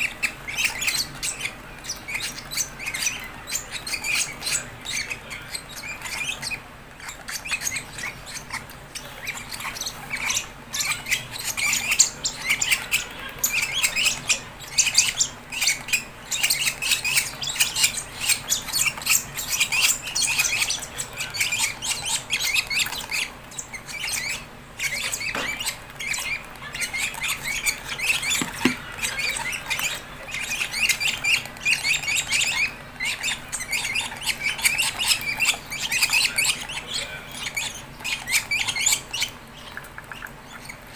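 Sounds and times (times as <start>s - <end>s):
bird chicks chirping and squawking: 0.0s - 40.9s.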